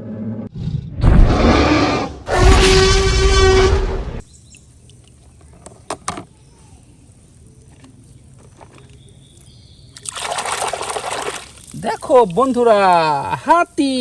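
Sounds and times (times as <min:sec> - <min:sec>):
faint background noise: 0:04.2 - 0:14.0.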